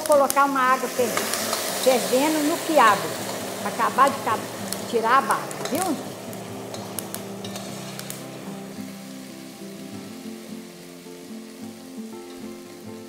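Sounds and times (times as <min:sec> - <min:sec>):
okra sizzling and bubbling in fat: 0:00.0 - 0:13.0
soft background music: 0:00.0 - 0:13.0
metal spoon stirring: 0:04.6 - 0:08.2.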